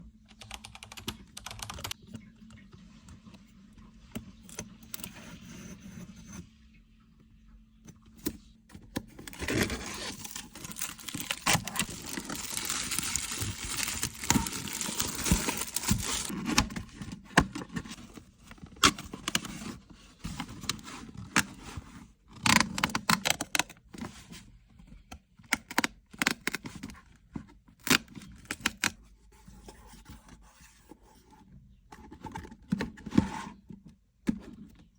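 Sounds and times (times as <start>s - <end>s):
wrapper crinkling and tearing: 9.3s - 16.4s.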